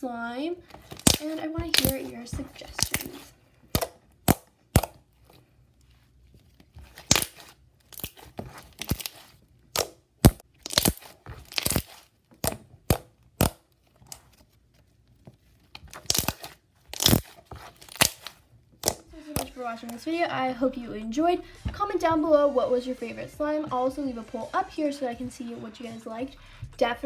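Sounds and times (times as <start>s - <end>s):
slime squished by hand popping: 0.8s - 2.1s, 2.7s - 5.0s, 8.8s - 13.6s, 15.9s - 19.5s.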